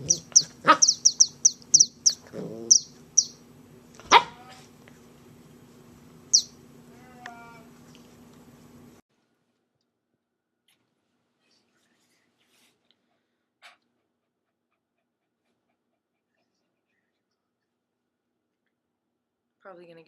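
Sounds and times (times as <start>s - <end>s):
puppy whining: 0.0s - 3.1s
puppy squealing: 0.0s - 3.3s
puppy squeaking: 0.0s - 3.4s.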